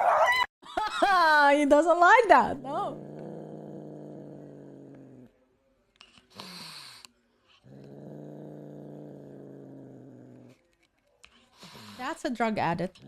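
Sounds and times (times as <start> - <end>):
animal growling: 2.6 - 5.4, 7.6 - 10.6.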